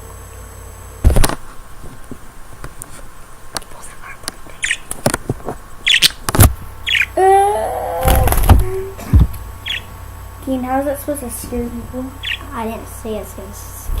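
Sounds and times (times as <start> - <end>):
handling knocks and clicks: 1.1 - 6.7
bird chirping: 3.2 - 7.2, 9.6 - 10.0, 12.1 - 12.8.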